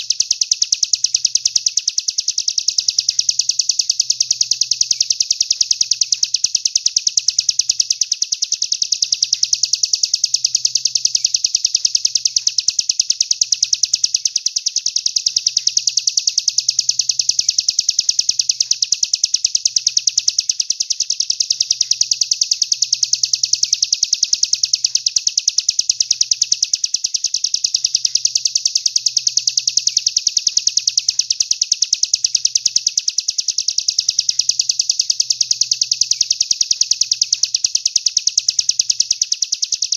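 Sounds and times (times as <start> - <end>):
songbird chirping trill: 0.0 - 39.9.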